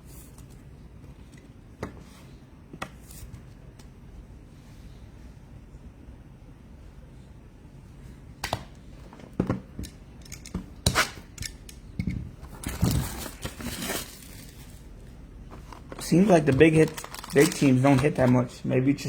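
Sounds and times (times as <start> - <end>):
plastic packaging crinkling: 15.8 - 18.5.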